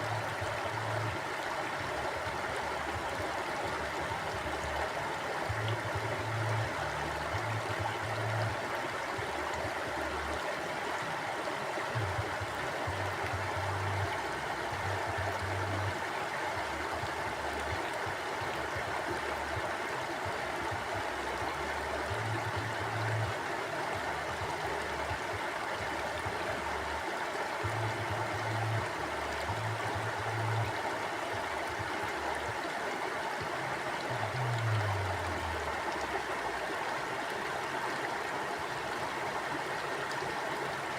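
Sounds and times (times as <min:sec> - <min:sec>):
mountain stream rushing: 0:00.0 - 0:40.9.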